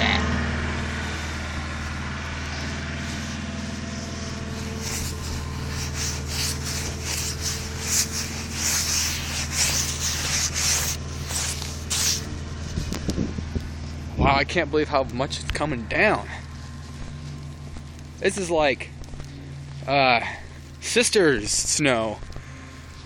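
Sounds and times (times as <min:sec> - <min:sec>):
car engine idling: 0:00.0 - 0:23.0
irregular scraping: 0:00.5 - 0:14.0.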